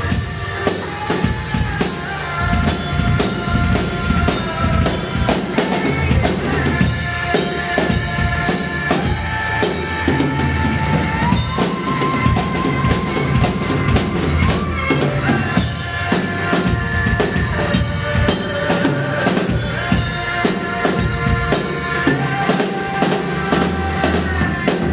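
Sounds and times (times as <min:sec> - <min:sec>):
drum kit playing a beat: 0:00.0 - 0:24.9
instrumental backing track: 0:00.0 - 0:24.9.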